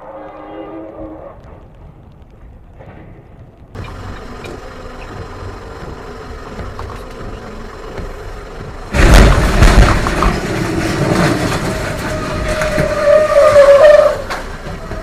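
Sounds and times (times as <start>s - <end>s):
vehicle engine and road noise: 1.0s - 15.0s.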